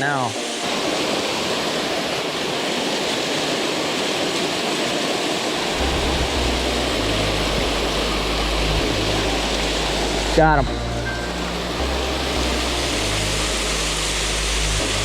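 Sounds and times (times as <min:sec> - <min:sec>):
waterfall and stream rushing: 0:00.0 - 0:15.0
low bass tones: 0:05.8 - 0:15.0.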